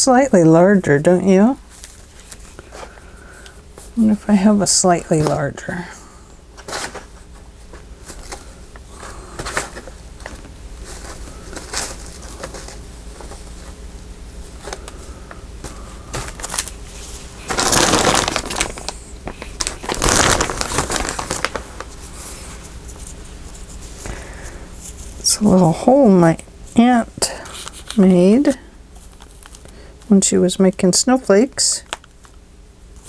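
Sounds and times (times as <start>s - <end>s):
paper crinkling: 1.6s - 4.2s, 6.6s - 25.5s, 27.3s - 29.8s
paper rustling: 6.6s - 13.8s, 14.4s - 25.3s.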